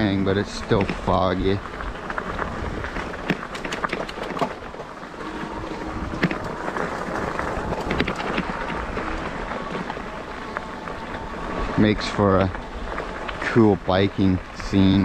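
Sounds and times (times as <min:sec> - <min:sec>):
bike tyres rolling on wet pavement: 0:00.0 - 0:15.0
wind buffeting microphone: 0:00.0 - 0:15.0.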